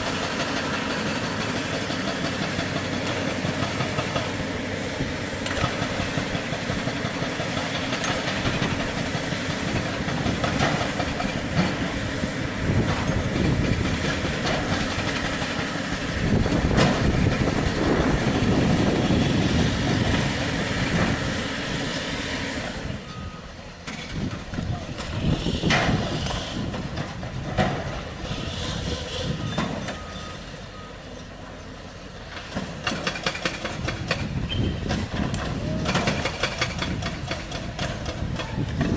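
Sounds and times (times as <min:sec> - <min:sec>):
diesel engines running: 0:00.0 - 0:38.9.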